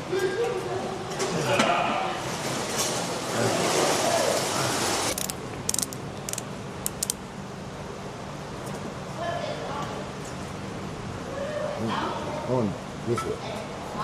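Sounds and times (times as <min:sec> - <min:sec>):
sharp clicks: 0:05.1 - 0:07.2.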